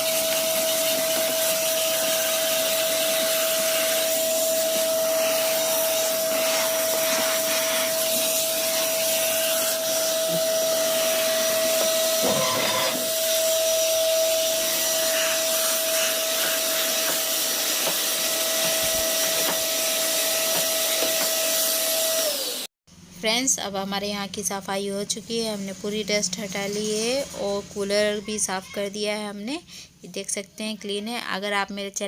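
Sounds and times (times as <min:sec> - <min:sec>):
vacuum cleaner whining: 0:00.0 - 0:22.7.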